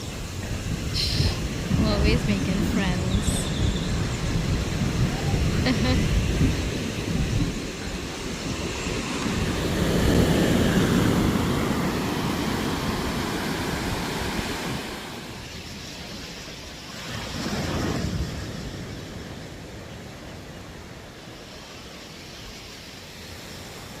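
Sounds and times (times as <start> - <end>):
ocean waves breaking on beach: 0.0 - 24.0.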